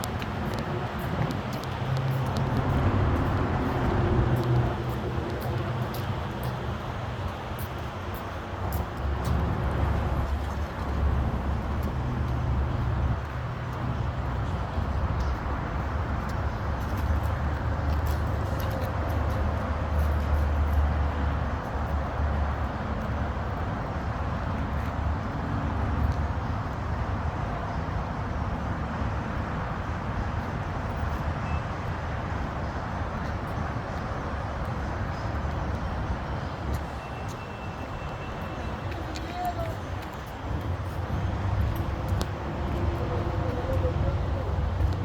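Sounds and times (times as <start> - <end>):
diesel engine rumbling: 40.4 - 45.0.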